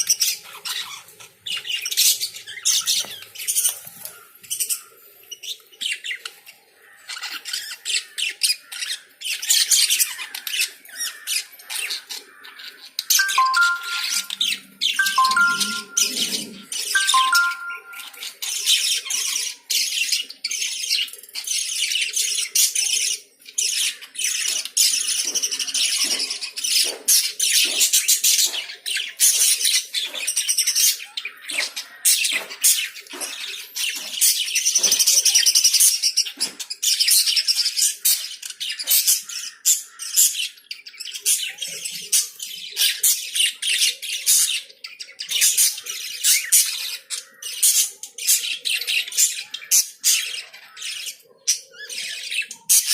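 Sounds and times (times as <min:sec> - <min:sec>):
lovebirds chirping: 0:00.0 - 0:52.9.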